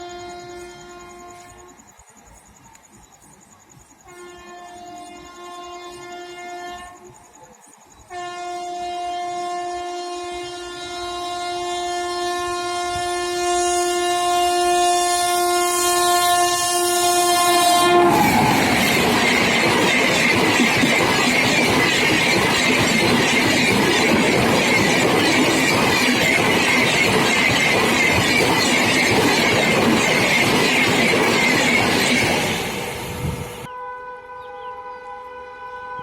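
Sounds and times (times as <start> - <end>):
train horn blasts: 0.0 - 1.8, 4.1 - 7.2, 8.1 - 19.4, 33.2 - 36.0
train rushing past: 9.9 - 33.7
wheels clattering on rails: 18.1 - 33.3.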